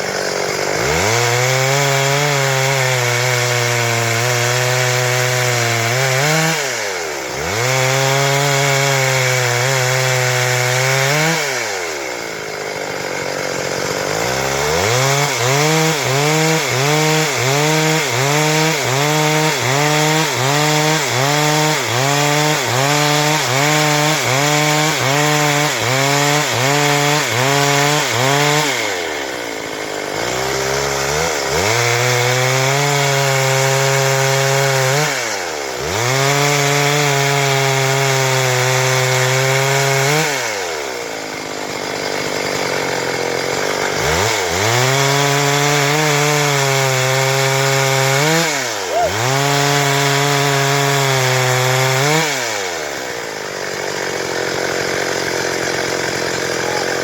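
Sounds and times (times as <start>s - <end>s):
chainsaw sawing through wood: 0.0s - 57.0s.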